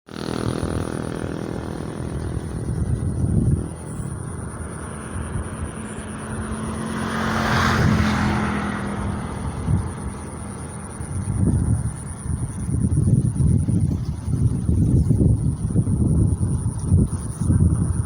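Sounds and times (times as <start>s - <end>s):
vehicle passing close: 0.1s - 16.8s
engine humming: 0.1s - 17.4s.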